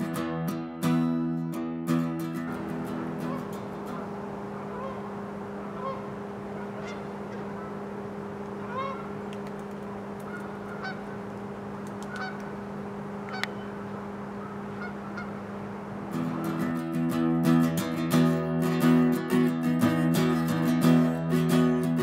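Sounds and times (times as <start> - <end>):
steady low hum: 0.0 - 22.0
honking bird calls: 2.3 - 17.2.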